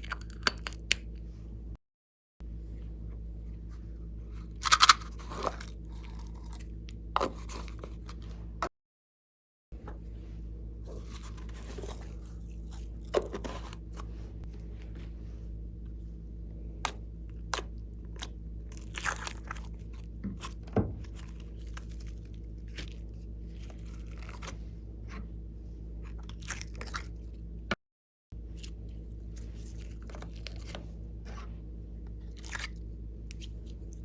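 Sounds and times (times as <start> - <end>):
steady low hum: 0.0 - 1.8, 2.4 - 8.7, 9.8 - 27.8, 28.4 - 34.0
slime crackling and popping: 4.6 - 6.6, 17.6 - 19.8.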